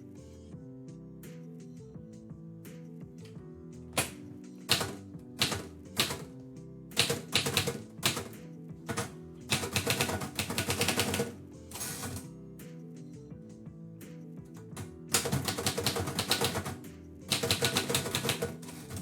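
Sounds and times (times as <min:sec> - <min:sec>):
background music with held notes: 0:00.0 - 0:19.0
typewriter keys striking: 0:04.0 - 0:06.3, 0:07.0 - 0:12.3, 0:14.7 - 0:19.0.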